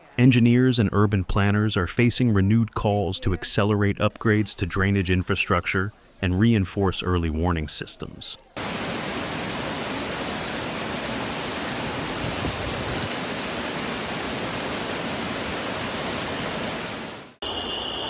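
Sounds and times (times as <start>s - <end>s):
heavy water rushing: 8.6s - 17.4s.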